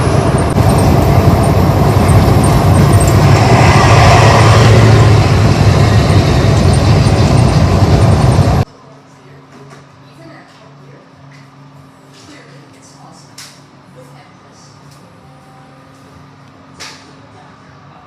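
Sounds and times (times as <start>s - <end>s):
car road and wind noise: 0.0s - 8.6s
engine and tyre hum: 0.0s - 8.7s.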